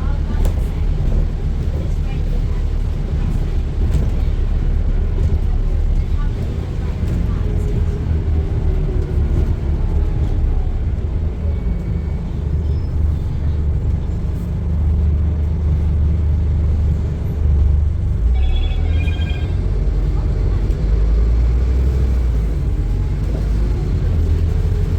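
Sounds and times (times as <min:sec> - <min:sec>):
diesel bus engine rumbling: 0:00.0 - 0:24.9
short electronic beeping: 0:18.3 - 0:19.7.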